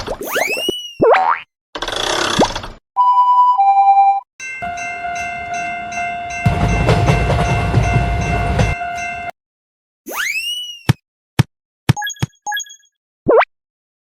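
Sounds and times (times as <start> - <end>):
train horn: 4.6 - 9.3
train wheels clickety-clack: 6.4 - 8.8.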